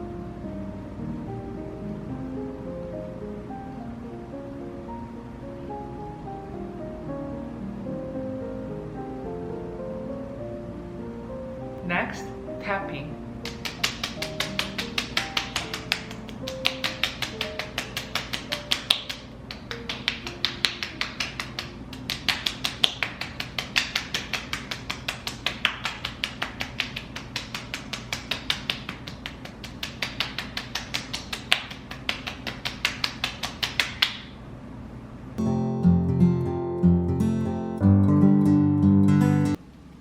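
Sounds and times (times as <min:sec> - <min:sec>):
fingertips tapping on skin: 0:13.4 - 0:34.2.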